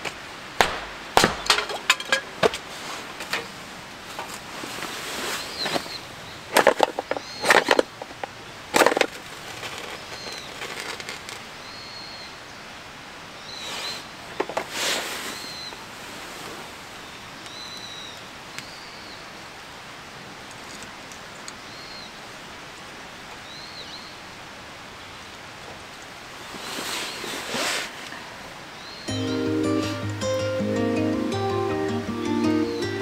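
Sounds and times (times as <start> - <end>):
loud rustling or scraping: 1.5 - 7.9, 13.6 - 16.8, 26.4 - 28.2.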